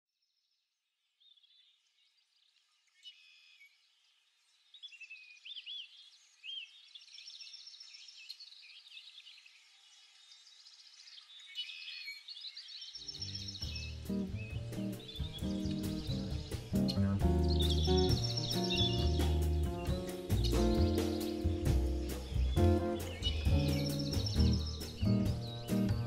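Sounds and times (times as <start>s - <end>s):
birds chirping and whistling: 10.5s - 26.0s
music: 13.1s - 26.0s.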